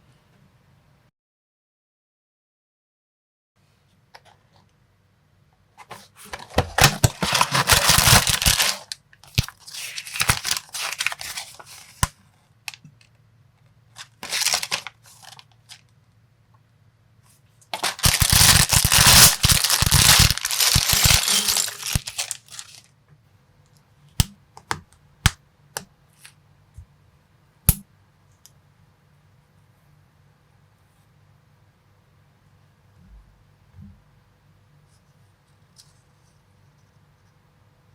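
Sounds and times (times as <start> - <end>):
plastic packaging crinkling and tearing: 6.2 - 12.1, 14.0 - 15.8, 17.7 - 22.9.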